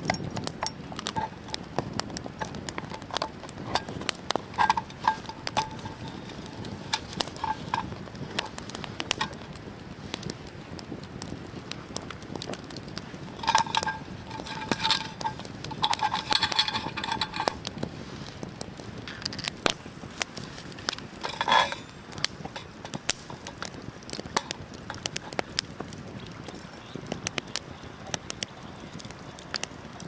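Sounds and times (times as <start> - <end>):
metallic clinking and scraping: 0.0 - 9.5, 13.3 - 17.8, 19.0 - 25.5
wood fire crackling: 0.0 - 30.0.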